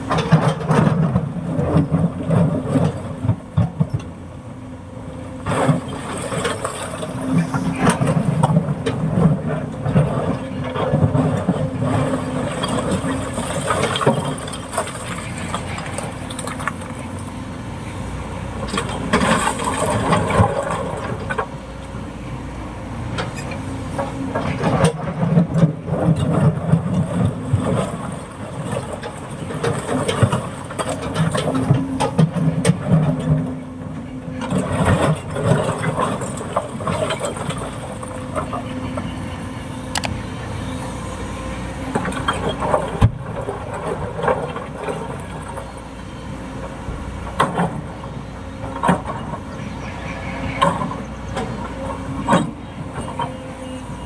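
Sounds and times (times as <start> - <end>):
excavator diesel engine working: 0.0 - 54.0
clunks: 46.9 - 54.0.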